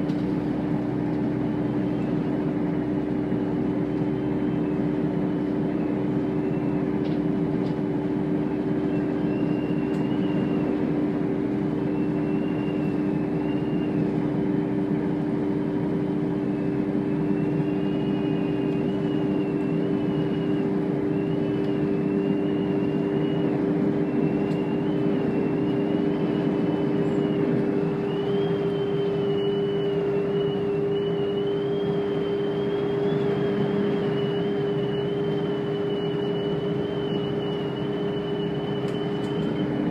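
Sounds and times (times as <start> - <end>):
diesel train running: 0.0 - 39.9
faint high whine: 15.6 - 39.9.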